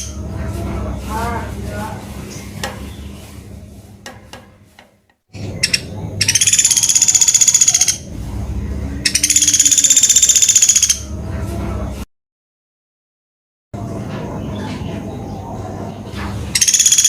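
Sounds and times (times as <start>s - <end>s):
woodpecker rattling trills: 4.1s - 8.1s, 9.1s - 11.0s, 16.6s - 17.0s.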